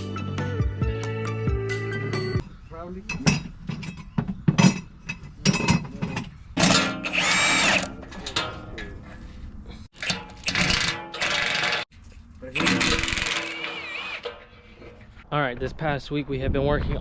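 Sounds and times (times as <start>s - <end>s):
tools clanking on metal: 3.0s - 9.2s, 9.9s - 15.1s
power drill whining: 6.6s - 7.9s, 10.0s - 11.9s, 12.6s - 14.9s.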